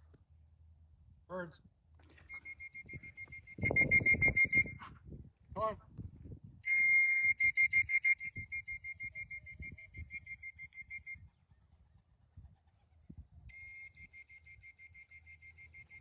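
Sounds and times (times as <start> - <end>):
whistle trilling: 2.2 - 4.8, 6.6 - 11.3, 13.5 - 16.0.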